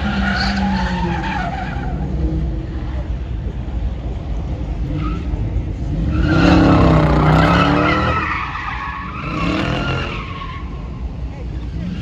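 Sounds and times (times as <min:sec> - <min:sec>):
tyres squealing: 0:06.0 - 0:12.0.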